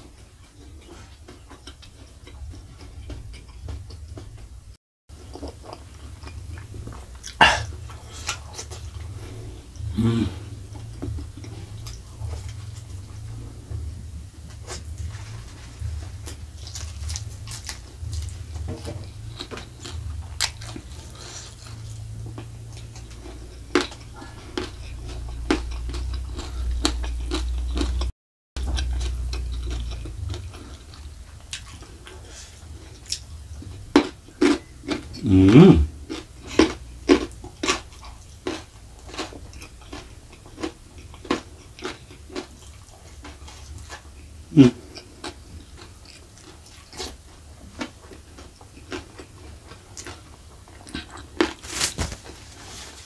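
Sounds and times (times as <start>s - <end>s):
chewing and crunching food: 0.0s - 53.0s
wet mouth sounds: 6.2s - 13.7s, 34.5s - 36.8s, 43.9s - 45.4s.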